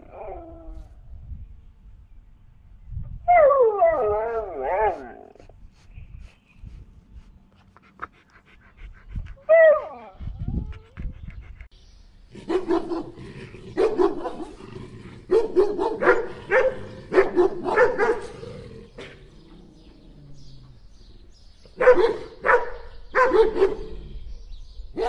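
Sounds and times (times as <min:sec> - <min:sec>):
dog barking: 0:12.4 - 0:13.2, 0:13.8 - 0:14.6, 0:15.3 - 0:18.4, 0:21.8 - 0:23.9.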